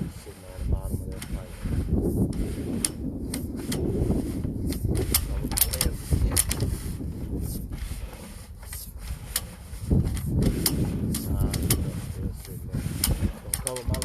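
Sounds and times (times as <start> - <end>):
steady low rumble: 0.0 - 14.0
cable clicking and knocking in pipe: 4.7 - 6.8, 7.5 - 14.0.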